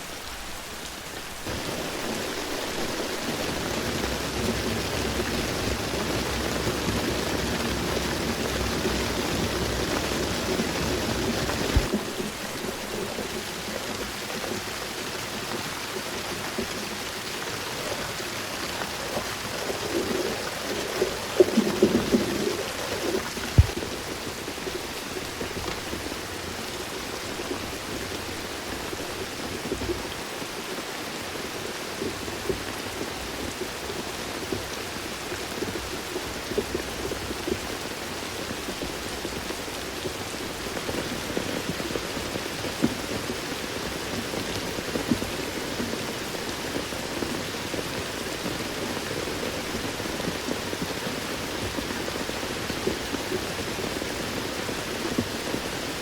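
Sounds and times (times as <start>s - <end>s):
rain falling in forest: 0.0s - 56.0s
heavy drops tapping: 23.5s - 23.8s.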